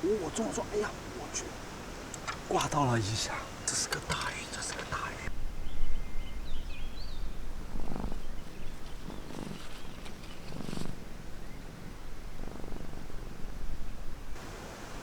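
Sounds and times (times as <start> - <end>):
faint bird chirps: 0.0 - 12.8
cat purring: 7.8 - 11.0, 11.6 - 13.0.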